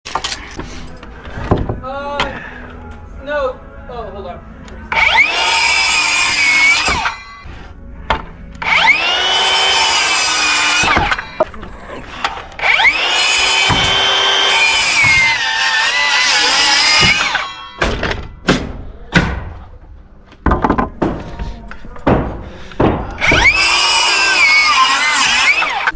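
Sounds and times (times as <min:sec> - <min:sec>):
circular saw cutting lumber: 0:04.9 - 0:07.5, 0:08.6 - 0:17.8, 0:22.7 - 0:25.9
sharp wooden knocks: 0:20.4 - 0:21.4, 0:22.0 - 0:23.6.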